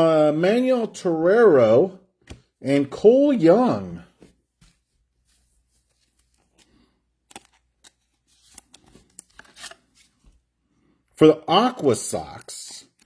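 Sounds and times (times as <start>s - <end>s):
trading cards rustling and clicking: 5.6s - 10.4s.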